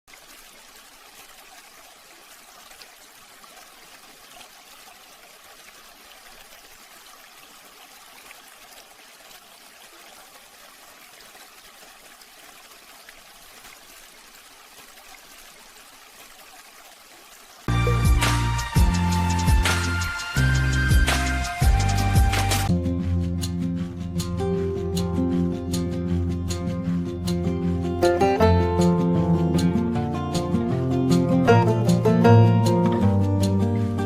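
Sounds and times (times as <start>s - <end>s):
fountain water trickling: 0.1s - 22.7s.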